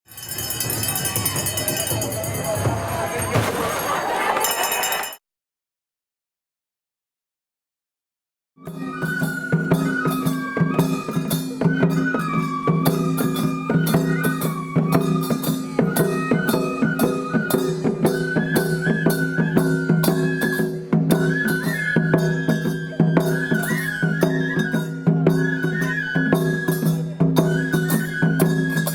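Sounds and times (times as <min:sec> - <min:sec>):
steady drum beats: 0:00.1 - 0:05.0
flute melody with slides: 0:08.6 - 0:28.9.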